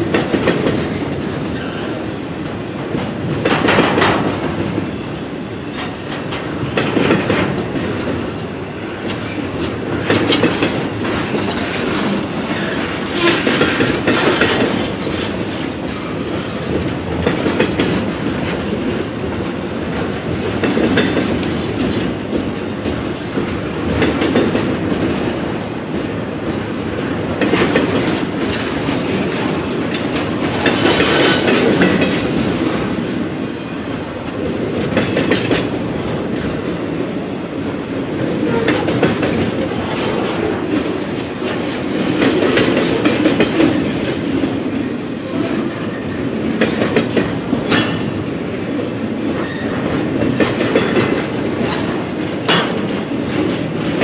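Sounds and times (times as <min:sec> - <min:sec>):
wheels clacking over rail joints: 0:05.6 - 0:54.0.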